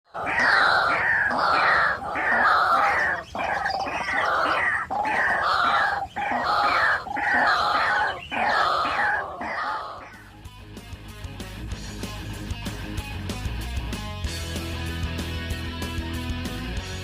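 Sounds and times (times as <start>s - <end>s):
waterhen croaking call: 0.1s - 10.3s.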